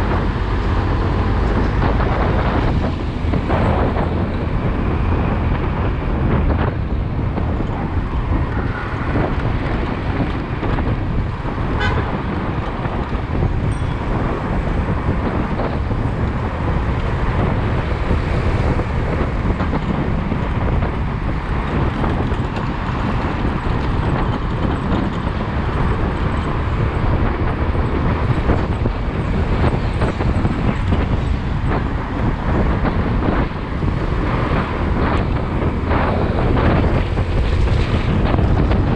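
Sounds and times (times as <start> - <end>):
motorcycle riding rumble: 0.0 - 38.9
traffic noise: 0.0 - 38.9.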